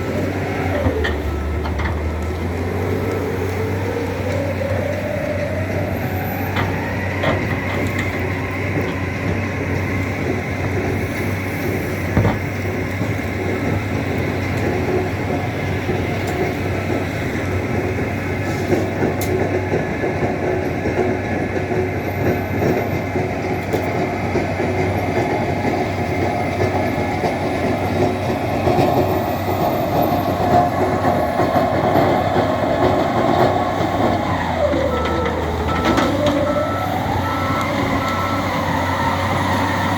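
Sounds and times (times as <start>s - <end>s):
tractor engine revving: 0.0s - 39.9s.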